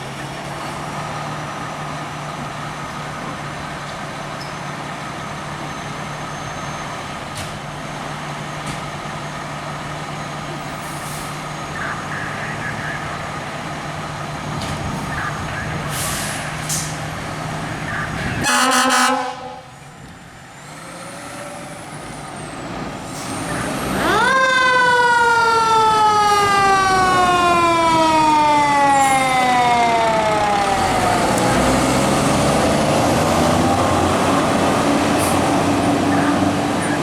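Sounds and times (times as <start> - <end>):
truck passing: 0.0 - 37.0
fire truck air horn blast: 18.3 - 19.8.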